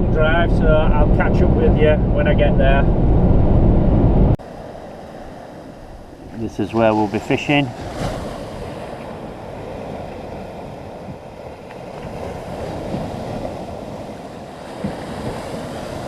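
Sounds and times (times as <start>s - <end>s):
wind buffeting microphone: 0.0s - 16.0s
surf breaking on beach: 4.4s - 16.0s.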